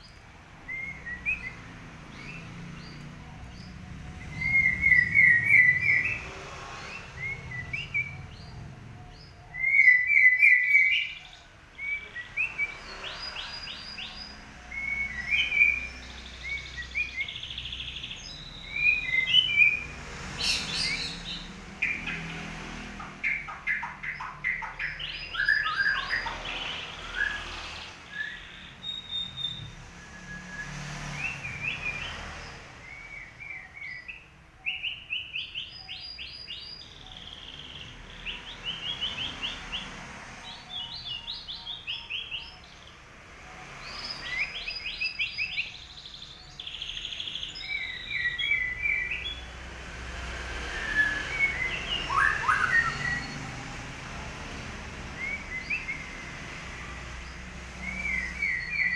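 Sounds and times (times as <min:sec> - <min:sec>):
songbird chirping phrases: 0:00.0 - 0:58.9.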